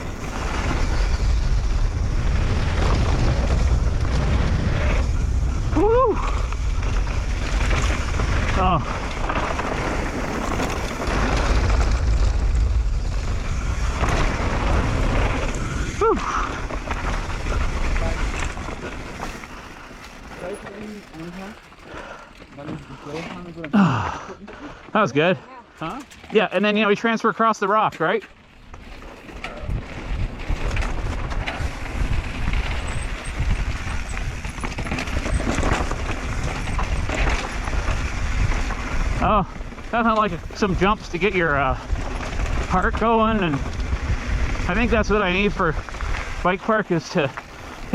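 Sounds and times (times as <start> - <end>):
wind buffeting microphone: 0.0 - 19.9, 29.5 - 46.5
bike tyres rumbling on dirt trail: 0.0 - 25.5, 26.1 - 47.9.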